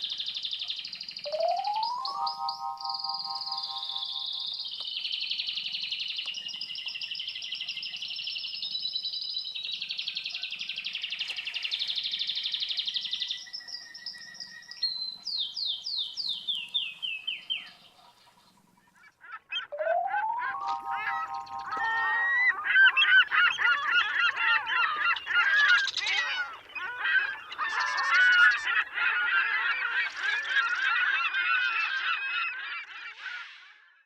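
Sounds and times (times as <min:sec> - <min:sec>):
canaries trilling: 0:00.0 - 0:05.8, 0:19.2 - 0:33.6.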